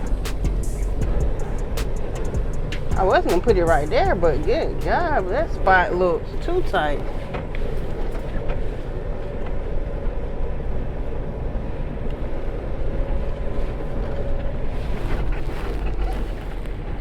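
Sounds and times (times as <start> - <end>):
diesel truck engine idling: 0.0 - 9.8.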